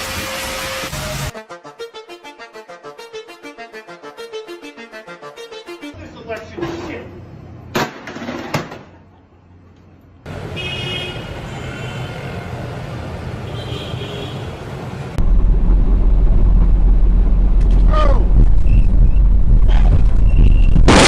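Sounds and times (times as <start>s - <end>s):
loud low rumble: 15.2s - 21.0s.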